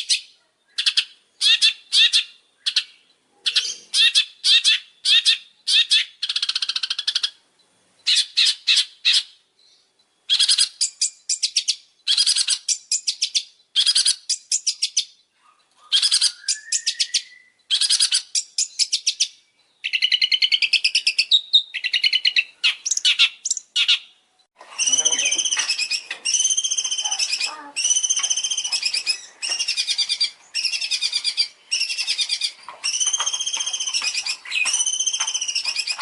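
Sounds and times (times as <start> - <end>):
shrike singing rattling notes: 24.8 - 36.0.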